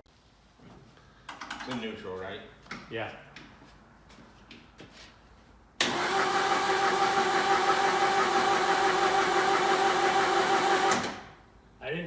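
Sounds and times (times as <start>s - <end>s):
engine cranking by starter motor: 5.8s - 11.4s.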